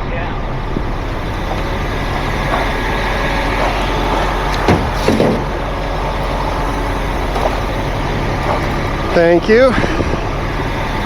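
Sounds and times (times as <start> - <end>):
heavy truck engine idling: 0.6 - 9.7
short knocks: 1.3 - 9.2.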